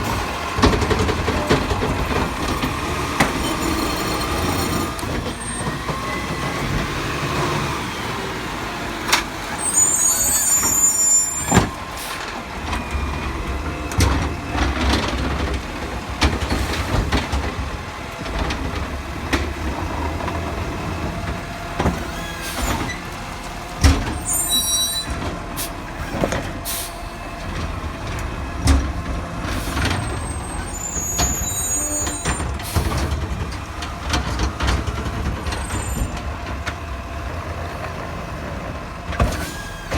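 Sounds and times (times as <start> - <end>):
diesel engine running: 0.0 - 39.9
air brakes hissing: 9.6 - 12.3, 24.2 - 27.1.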